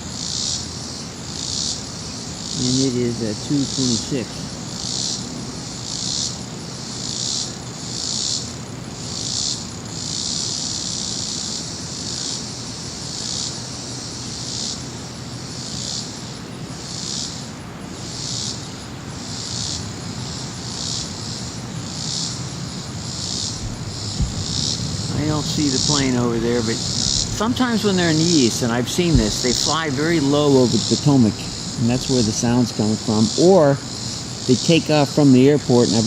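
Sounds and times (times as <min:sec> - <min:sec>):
high insect chorus: 0:00.0 - 0:36.0
jet aircraft rumble: 0:02.6 - 0:05.6, 0:22.4 - 0:36.0.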